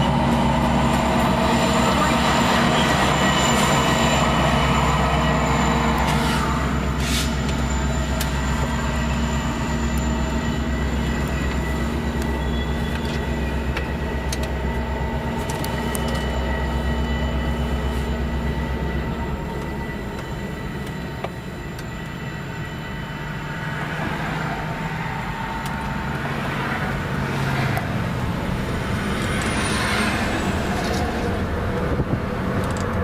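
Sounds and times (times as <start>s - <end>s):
diesel train engine drone: 0.0s - 33.0s
train wheels clicking: 0.1s - 17.0s, 19.3s - 22.2s.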